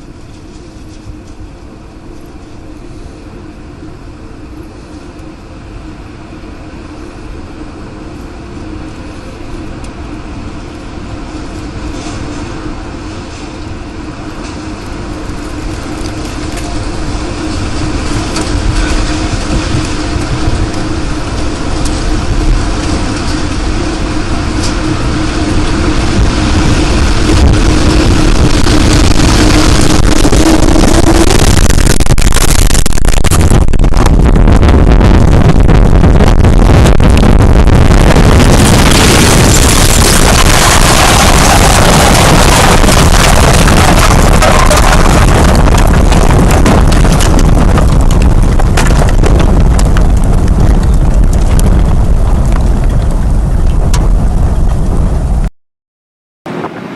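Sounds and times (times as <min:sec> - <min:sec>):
loud wind buffeting microphone: 0:00.0 - 0:55.5
steady hum: 0:00.0 - 0:55.5
sharp knocks and cracks: 0:39.1 - 0:54.1.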